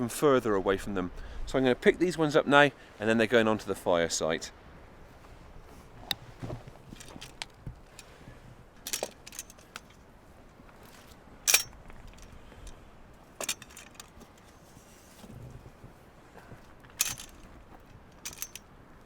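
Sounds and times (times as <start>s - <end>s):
handling noise: 5.1s - 19.0s.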